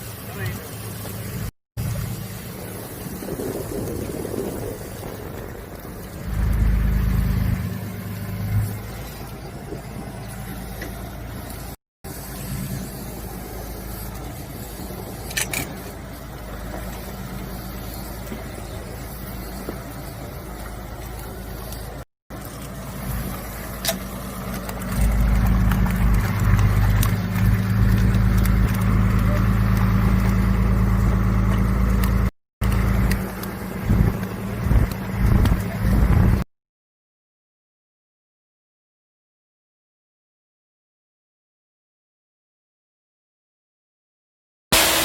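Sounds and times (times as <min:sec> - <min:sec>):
engine humming: 0:00.0 - 0:36.4.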